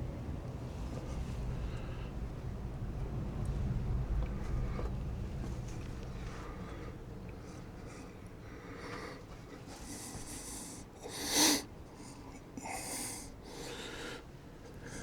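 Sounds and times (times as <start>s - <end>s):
person breathing: 8.0s - 15.0s.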